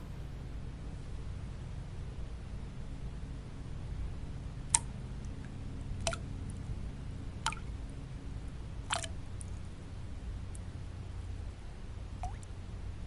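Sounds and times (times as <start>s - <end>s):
low white noise: 0.0s - 13.0s
water drops dripping: 8.9s - 9.1s, 12.2s - 12.5s.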